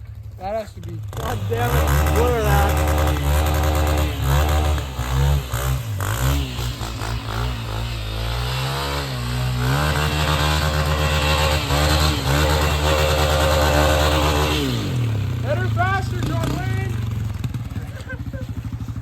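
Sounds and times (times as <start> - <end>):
dirt bike engine revving: 0.2 - 19.0.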